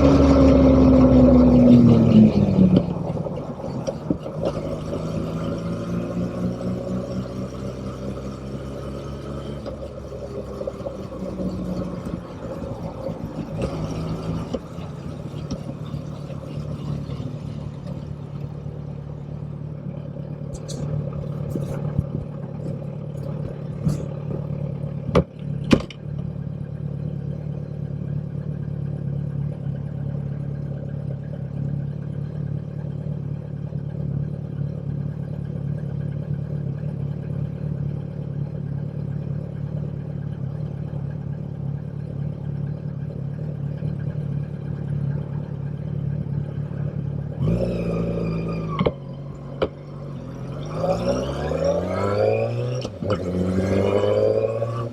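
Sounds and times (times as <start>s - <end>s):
motorcycle engine idling: 6.9s - 47.4s.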